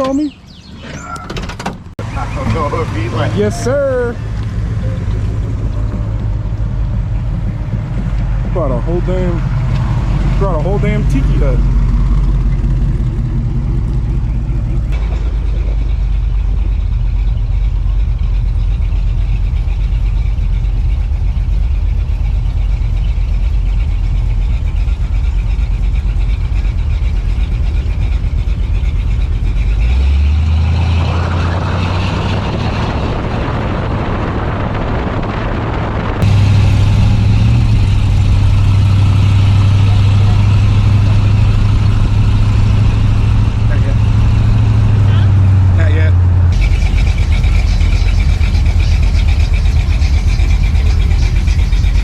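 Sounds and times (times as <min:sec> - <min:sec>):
car engine rumbling: 0:00.0 - 0:52.0
rush of noise: 0:30.6 - 0:52.0.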